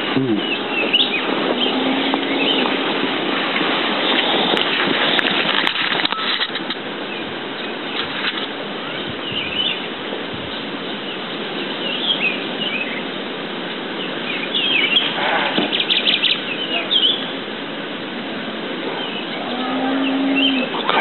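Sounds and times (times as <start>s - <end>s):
small birds chirping: 0.0s - 2.9s, 8.8s - 17.5s, 18.8s - 21.0s
steady background hiss: 0.0s - 21.0s
bird trill: 14.3s - 17.4s, 19.0s - 20.7s.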